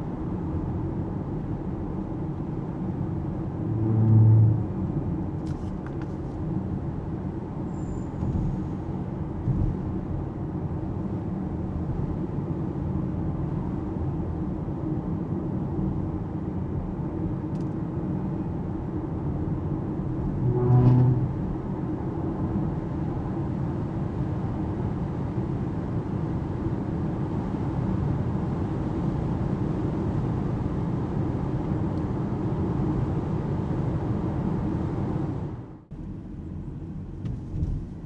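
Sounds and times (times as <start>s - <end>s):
short low-pitched tone: 3.5s - 5.2s, 20.4s - 21.6s.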